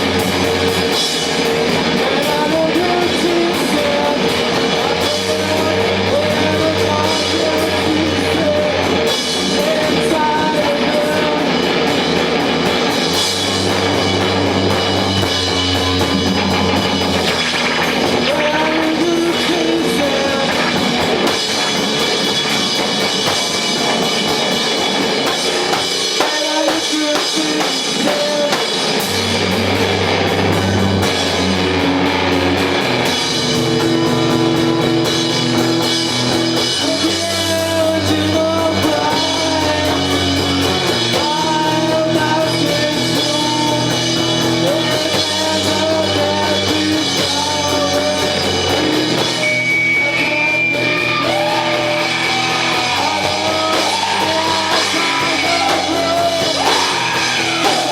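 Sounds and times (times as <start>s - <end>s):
drum kit: 0.0s - 57.9s
electric guitar: 0.0s - 57.9s
low bass notes: 0.0s - 57.9s
person singing: 1.8s - 11.7s, 15.2s - 21.1s, 26.1s - 29.1s, 36.6s - 57.9s.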